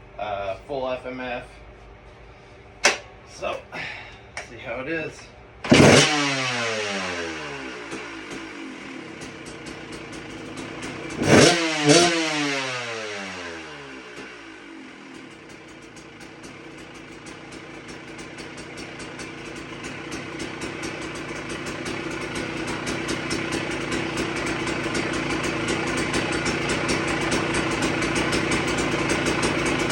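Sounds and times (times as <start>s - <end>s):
dirt bike engine idling: 5.6s - 29.9s.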